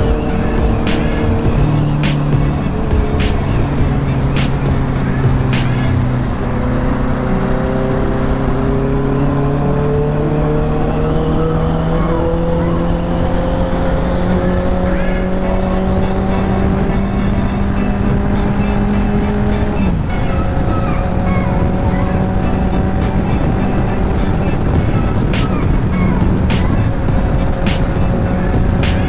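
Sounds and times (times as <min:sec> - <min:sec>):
motorcycle engine accelerating: 0:00.0 - 0:29.0
wind noise on microphone: 0:14.3 - 0:29.0.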